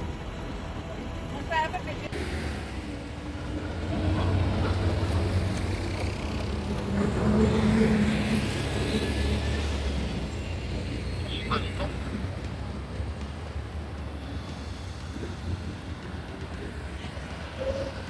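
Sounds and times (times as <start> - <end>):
vehicle engine rumbling: 2.1 - 17.9.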